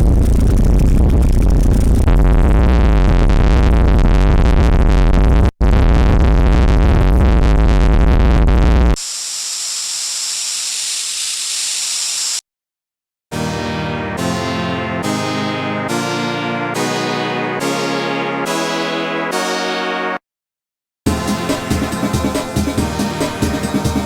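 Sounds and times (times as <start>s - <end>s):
bass-heavy synthesizer buzzing: 0.0s - 9.0s, 21.1s - 24.0s
steady high hiss: 9.0s - 12.4s.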